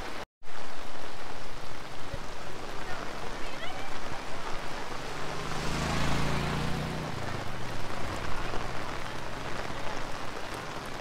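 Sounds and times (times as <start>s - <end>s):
heavy rain on umbrellas: 0.0s - 11.0s.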